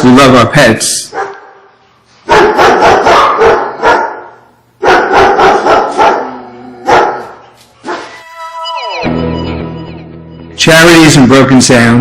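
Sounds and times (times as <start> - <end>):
dog barking: 1.1 - 1.7, 2.3 - 8.2.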